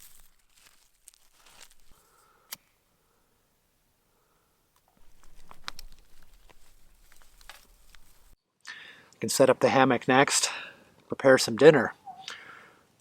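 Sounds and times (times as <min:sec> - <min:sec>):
kindling and paper rustling: 0:00.0 - 0:02.1, 0:04.9 - 0:08.4
faint clicks: 0:04.8 - 0:08.2.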